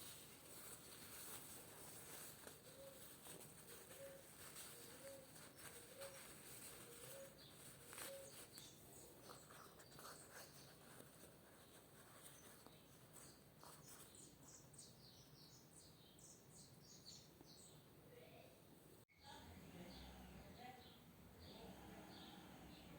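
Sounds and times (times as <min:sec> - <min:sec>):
faint bird chirps: 0:01.3 - 0:17.9.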